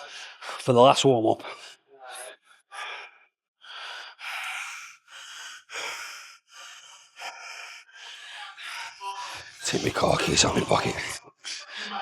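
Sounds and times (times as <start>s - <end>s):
man breathing hard: 0.0s - 0.6s, 1.5s - 9.6s.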